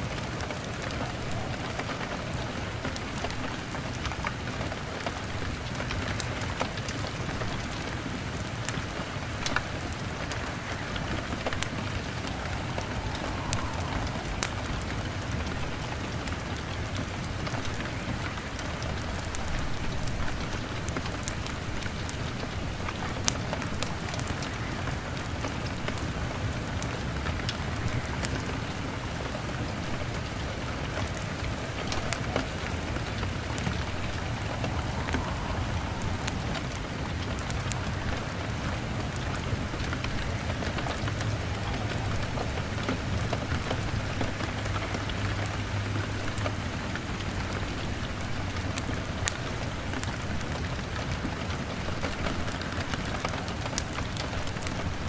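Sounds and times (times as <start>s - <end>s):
heavy rain on window glass: 0.0s - 55.0s
log fire crackling: 0.0s - 55.0s.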